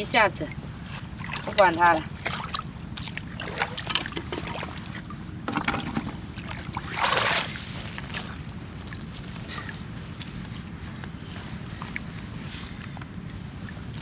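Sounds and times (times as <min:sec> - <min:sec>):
steady low rumble: 0:00.0 - 0:14.0
water splashing: 0:00.5 - 0:14.0
footsteps on wet rocks: 0:07.4 - 0:10.8.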